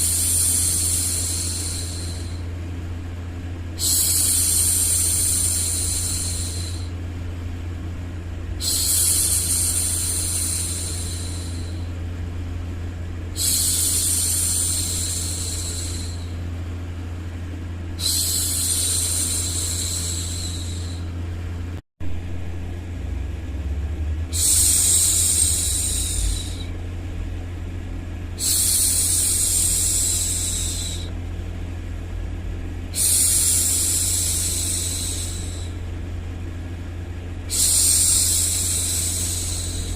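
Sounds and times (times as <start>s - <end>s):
deep rumbling background noise: 0.0s - 39.9s.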